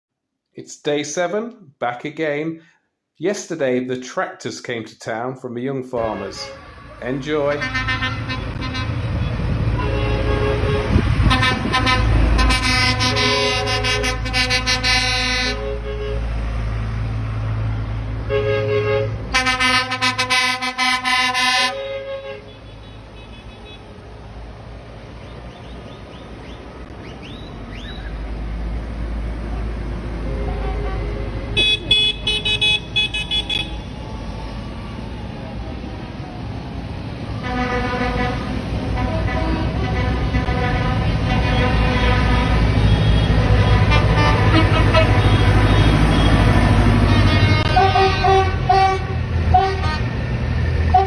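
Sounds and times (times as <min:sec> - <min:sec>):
tractor engines rumbling: 0:03.2 - 0:51.0
tractor horns honking: 0:06.0 - 0:16.6, 0:18.2 - 0:24.1, 0:30.1 - 0:34.0, 0:37.4 - 0:50.2, 0:50.8 - 0:51.0.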